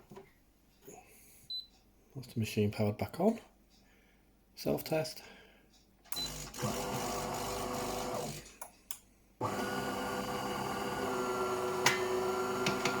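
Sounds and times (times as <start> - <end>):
coffee machine buzzing: 6.2 - 8.4, 9.4 - 13.0.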